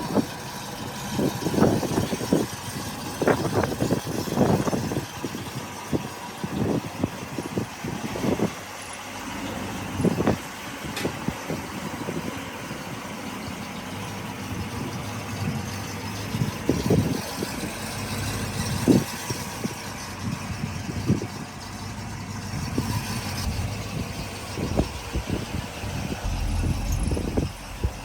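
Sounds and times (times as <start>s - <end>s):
vehicle engine and road rumble: 0.0s - 28.0s
short low thumps: 26.0s - 28.0s.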